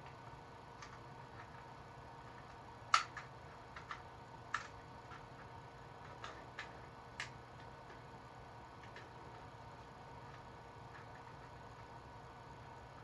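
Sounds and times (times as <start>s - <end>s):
plastic toy clicks and taps: 2.9s - 5.2s.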